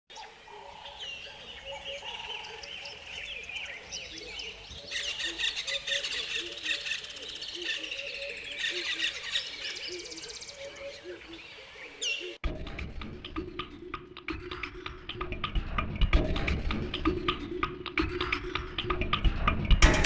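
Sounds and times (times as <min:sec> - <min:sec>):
birds calling and chirping: 0:00.1 - 0:12.4.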